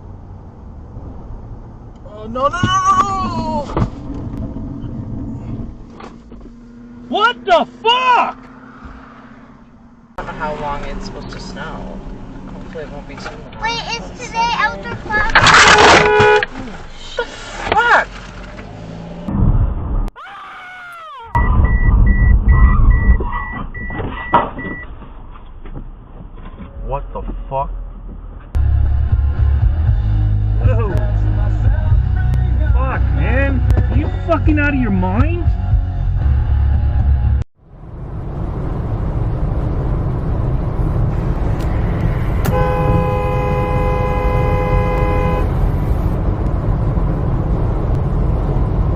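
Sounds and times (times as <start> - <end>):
low rumble of vehicle moving: 0.0 - 20.1, 21.4 - 48.9
car road and engine noise: 0.0 - 20.2, 21.3 - 48.9
car horn: 15.4 - 16.6, 42.2 - 46.1
short falling wail: 20.2 - 21.8
electronic warning beeps: 21.4 - 24.9.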